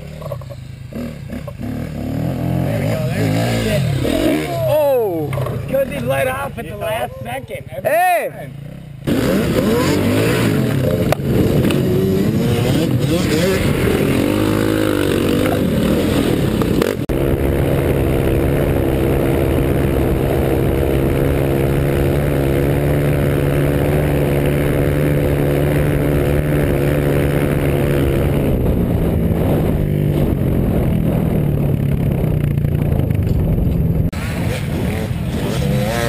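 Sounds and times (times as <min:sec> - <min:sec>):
dirt bike engine running: 0:08.5 - 0:36.0
rushing wind: 0:09.0 - 0:36.0.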